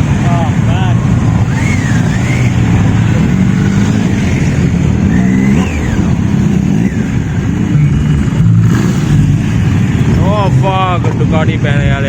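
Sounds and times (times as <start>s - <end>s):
engine revving: 0.0s - 12.0s
sports car and motorcycle engines: 0.0s - 12.0s.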